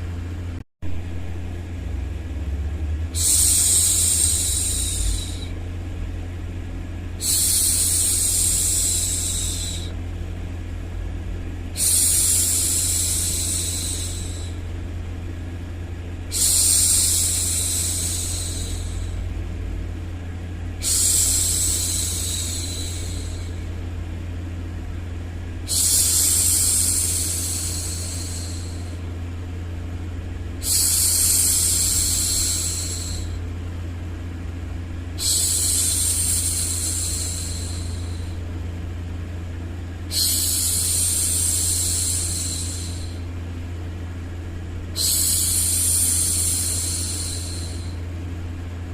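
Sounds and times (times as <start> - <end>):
steady low hum: 0.0 - 48.9
woman shushing: 3.2 - 5.5, 7.2 - 9.9, 11.8 - 14.6, 16.3 - 19.2, 20.8 - 23.6, 25.7 - 29.0, 30.6 - 33.4, 35.2 - 38.4, 40.1 - 43.2, 45.0 - 48.0.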